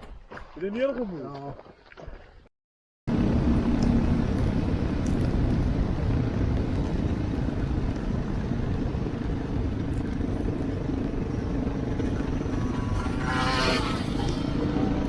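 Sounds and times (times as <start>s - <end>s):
dirt bike engine running: 3.1s - 15.0s.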